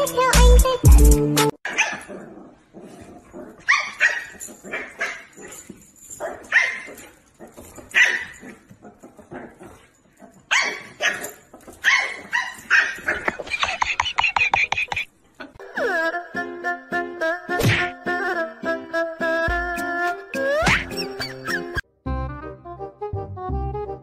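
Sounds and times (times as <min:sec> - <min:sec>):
music with a beat: 0:00.0 - 0:01.6
dog barking: 0:01.7 - 0:02.2, 0:03.6 - 0:05.6, 0:06.2 - 0:07.1, 0:07.8 - 0:08.6, 0:10.5 - 0:13.4.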